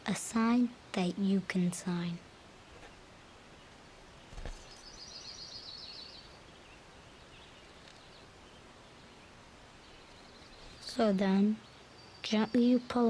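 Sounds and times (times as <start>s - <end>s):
faint bird chirps: 2.6s - 13.0s.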